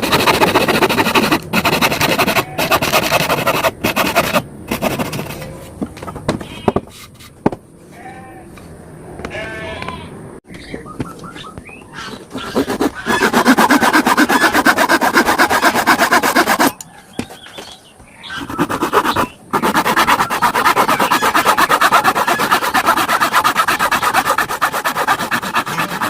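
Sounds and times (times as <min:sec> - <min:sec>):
scraping strokes on wood: 0:00.0 - 0:05.8, 0:11.9 - 0:26.0.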